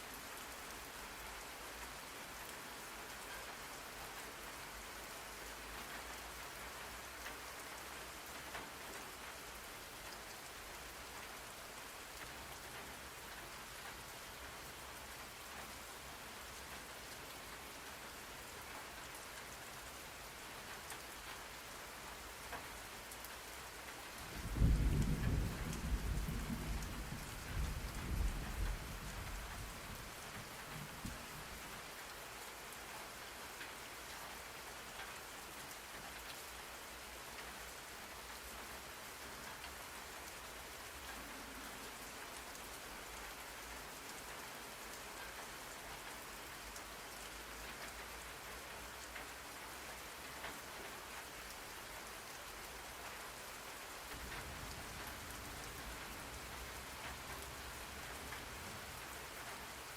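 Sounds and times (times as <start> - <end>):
steady rain: 0.0 - 59.9
thunder rumble: 24.4 - 31.3.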